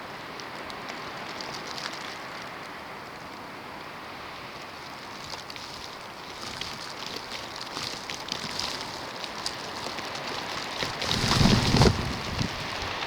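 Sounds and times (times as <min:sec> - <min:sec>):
wind blowing: 0:11.0 - 0:13.0.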